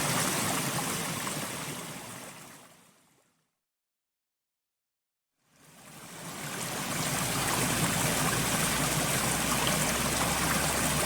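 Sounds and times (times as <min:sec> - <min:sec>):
steady hiss of water: 0:05.5 - 0:11.0.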